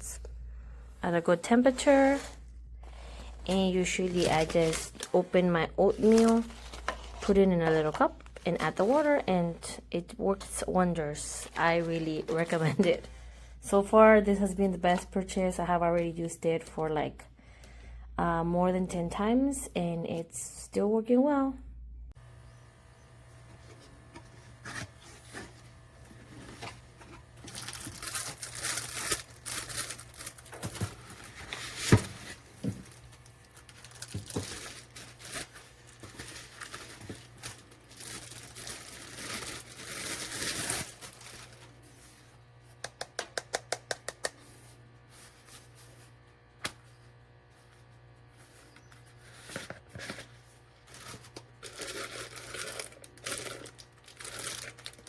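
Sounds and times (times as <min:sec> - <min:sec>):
packaging crinkling: 0:05.9 - 0:09.2, 0:26.3 - 0:41.9, 0:48.8 - 0:55.0.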